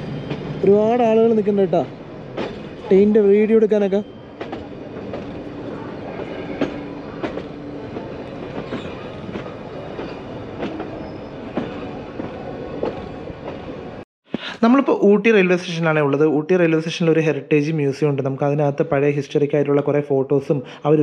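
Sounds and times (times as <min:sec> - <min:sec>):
train wheels clacking on rails: 0:00.0 - 0:14.0.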